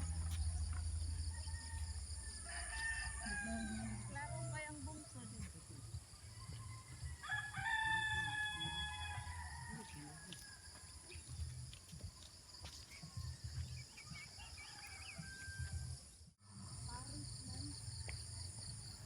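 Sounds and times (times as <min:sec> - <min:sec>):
rooster crowing: 0:00.0 - 0:04.6, 0:06.3 - 0:10.8, 0:14.3 - 0:15.9.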